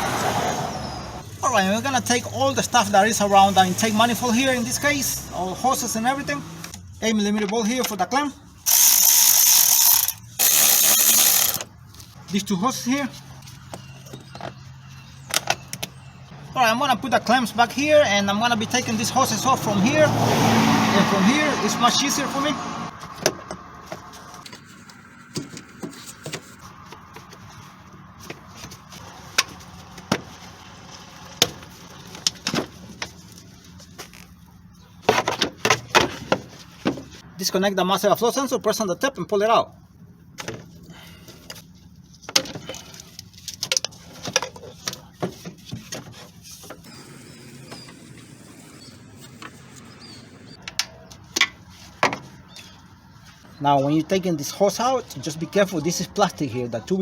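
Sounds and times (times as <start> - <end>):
hand tools clicking and knocking: 8.7 - 11.7.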